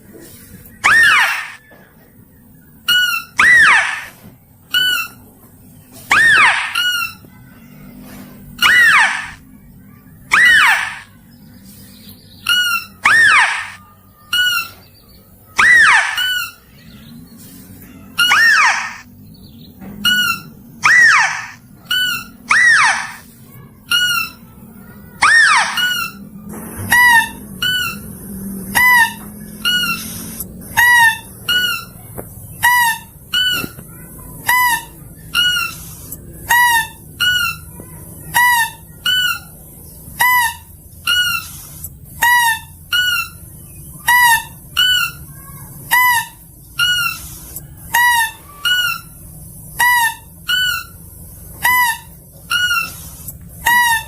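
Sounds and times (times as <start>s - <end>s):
lure call pitch-bending calls: 0.8s - 1.6s, 3.0s - 4.1s, 6.1s - 7.2s, 8.6s - 9.4s, 10.3s - 11.1s, 12.4s - 14.8s, 15.6s - 16.6s, 18.2s - 19.1s, 20.1s - 23.2s, 25.2s - 26.2s.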